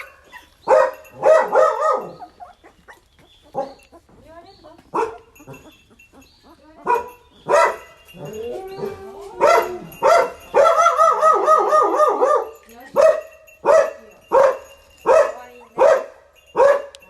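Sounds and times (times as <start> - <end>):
dog barking: 0.0 - 2.5, 3.5 - 3.8, 4.9 - 5.7, 6.8 - 8.3, 9.4 - 17.0
dog whining: 5.3 - 11.8.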